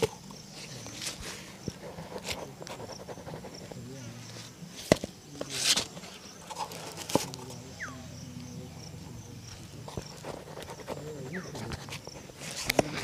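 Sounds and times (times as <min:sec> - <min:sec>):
falling chirp: 0:07.7 - 0:08.4.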